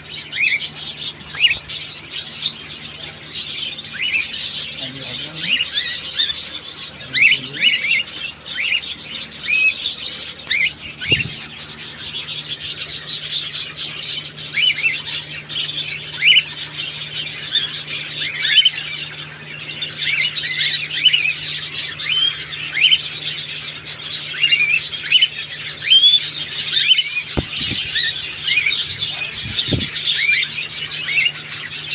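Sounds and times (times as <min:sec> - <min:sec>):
cockatiels chirping and whistling: 0:00.0 - 0:31.9
steady low hum: 0:00.0 - 0:31.9.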